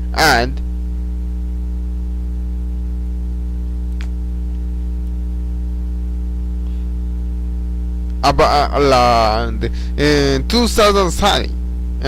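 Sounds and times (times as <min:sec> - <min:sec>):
electrical mains hum: 0:00.0 - 0:12.0
faint click: 0:03.9 - 0:05.2.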